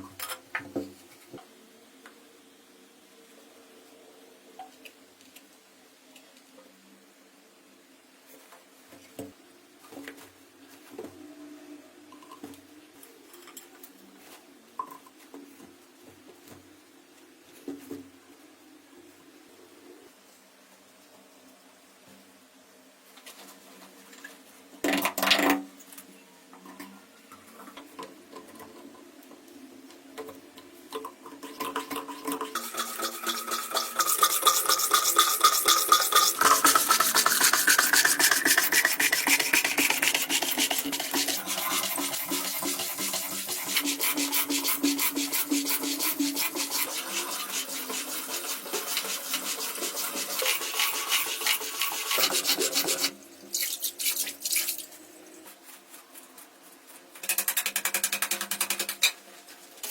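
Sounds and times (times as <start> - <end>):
hand tool scraping rough surface: 32.6 - 53.1.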